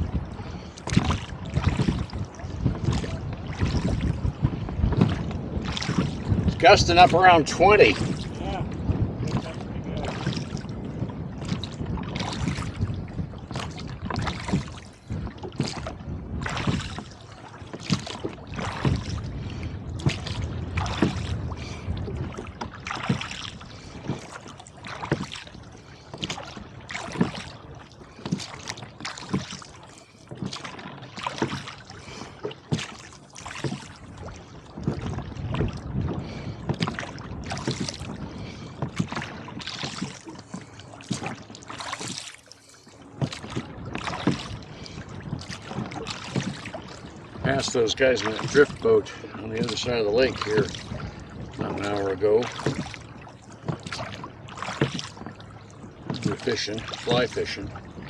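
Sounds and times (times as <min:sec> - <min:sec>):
wind buffeting microphone: 0:00.0 - 0:42.4, 0:43.0 - 0:58.0
water splashing against boat hull: 0:00.0 - 0:58.0.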